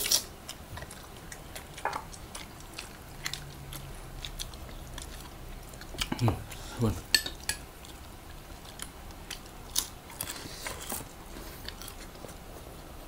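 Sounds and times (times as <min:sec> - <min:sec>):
chewing clicks and smacks: 0:00.0 - 0:06.2.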